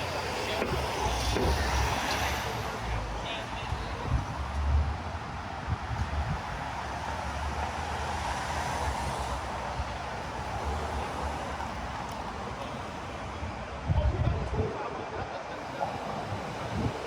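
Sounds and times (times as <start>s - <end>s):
steady traffic hiss: 0.0s - 13.9s, 15.4s - 17.0s
low rumble of vehicles: 0.0s - 14.8s, 15.4s - 17.0s.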